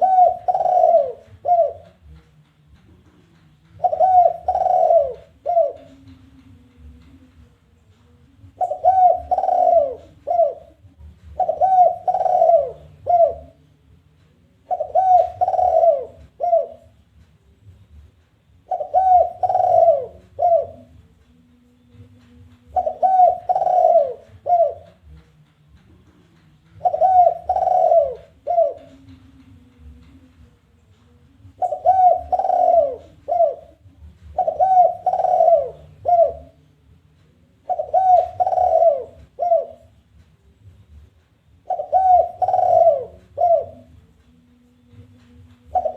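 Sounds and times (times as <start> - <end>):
dove cooing: 0.0 - 2.2, 3.7 - 7.0, 8.4 - 13.6, 14.6 - 17.0, 18.6 - 21.0, 22.6 - 25.2, 26.7 - 30.2, 31.4 - 36.6, 37.5 - 40.0, 41.6 - 44.1, 44.9 - 45.9.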